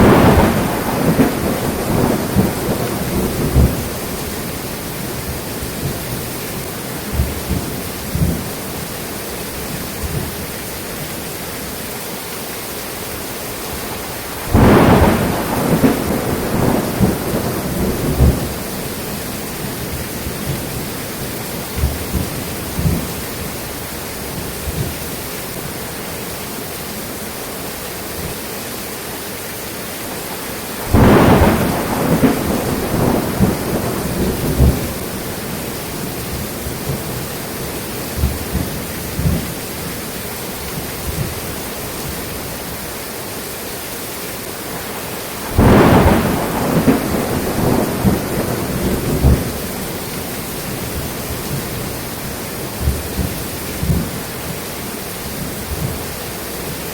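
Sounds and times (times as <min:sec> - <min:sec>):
thunderclap rumbling: 0:00.0 - 0:08.9, 0:13.9 - 0:23.6, 0:24.2 - 0:25.2, 0:30.8 - 0:41.6, 0:44.7 - 0:54.3, 0:55.3 - 0:56.2
steady rain falling: 0:00.0 - 0:56.9.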